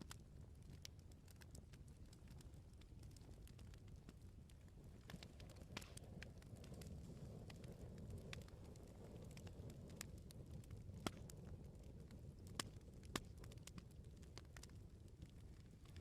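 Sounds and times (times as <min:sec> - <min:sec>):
bonfire crackling and popping: 0:00.0 - 0:16.0
low rumble of burning: 0:00.0 - 0:16.0.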